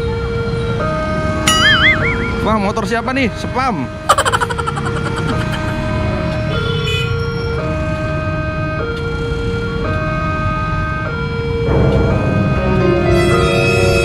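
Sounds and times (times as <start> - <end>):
road traffic: 0.0 - 11.6
two-tone crossing alarm: 1.5 - 2.6, 4.1 - 5.9.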